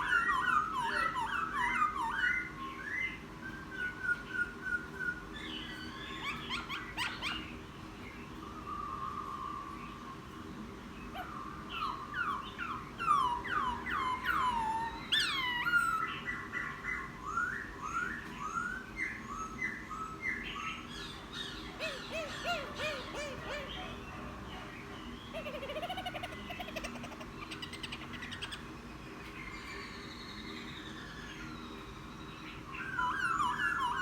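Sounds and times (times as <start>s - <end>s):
bird singing whistled song: 0.0s - 7.5s, 11.2s - 24.0s, 29.5s - 34.0s.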